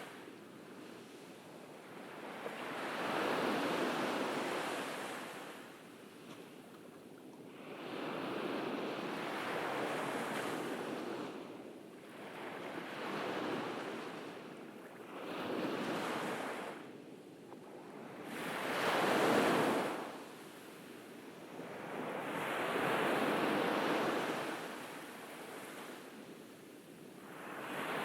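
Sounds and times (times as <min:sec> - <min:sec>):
ocean waves washing onto beach: 0:21.5 - 0:28.0.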